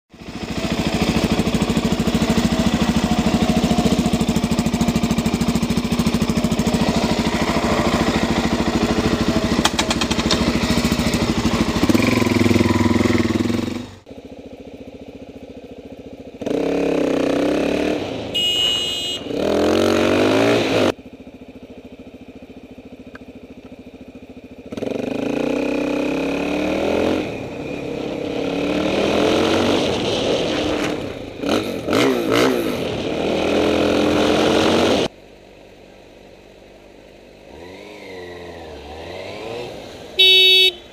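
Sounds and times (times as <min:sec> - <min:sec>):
motorcycle engine revving: 0:00.1 - 0:35.2, 0:36.3 - 0:40.9
brief high-pitched tone: 0:18.4 - 0:19.3.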